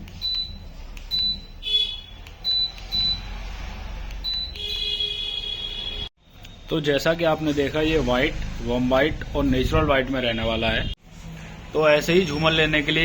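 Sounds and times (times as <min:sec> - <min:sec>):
high electronic beeps: 0:00.2 - 0:01.6, 0:02.4 - 0:03.3.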